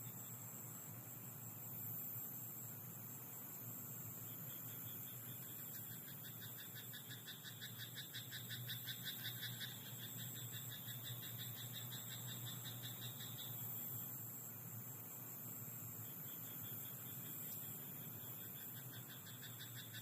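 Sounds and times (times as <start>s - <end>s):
steady high hiss: 0.0s - 20.0s
frog croaking: 5.2s - 13.6s, 16.5s - 20.0s.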